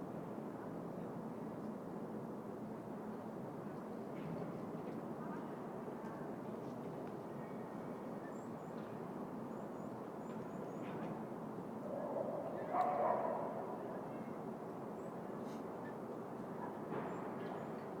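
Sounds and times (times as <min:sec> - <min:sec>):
distant city traffic hum: 0:10.8 - 0:18.0.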